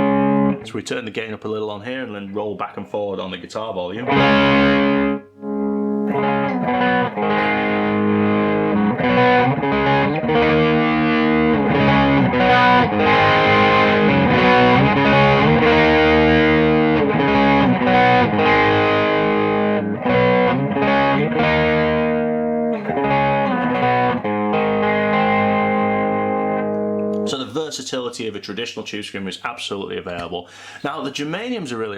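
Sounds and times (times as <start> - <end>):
distorted electric guitar: 0.0 - 0.6, 4.0 - 27.4.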